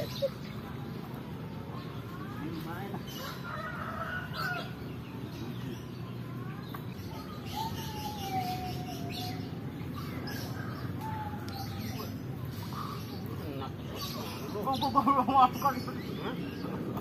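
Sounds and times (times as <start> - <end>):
faint high bird chirps: 5.4 - 13.2
long falling bird call: 7.2 - 13.3.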